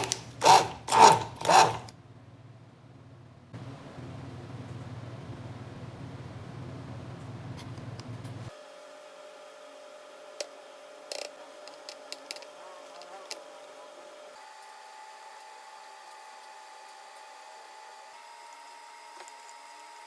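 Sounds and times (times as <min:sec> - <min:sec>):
electric mixer motor whining: 0:00.0 - 0:01.9.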